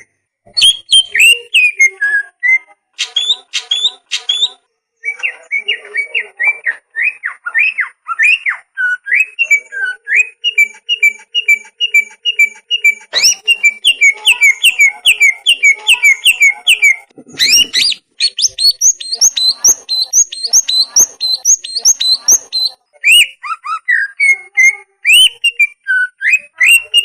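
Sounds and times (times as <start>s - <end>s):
bird whistling song: 0.0s - 27.0s
bird harsh rasp: 3.0s - 4.6s, 10.6s - 22.7s.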